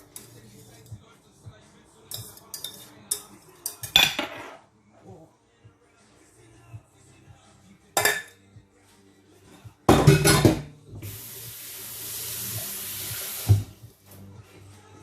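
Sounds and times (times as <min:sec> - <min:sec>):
dishes clinking: 0:02.1 - 0:04.6, 0:08.0 - 0:08.4, 0:09.9 - 0:10.7
pots and dishes clattering: 0:02.1 - 0:04.6, 0:08.0 - 0:08.4, 0:09.9 - 0:10.8
kitchen tap running: 0:11.0 - 0:13.8.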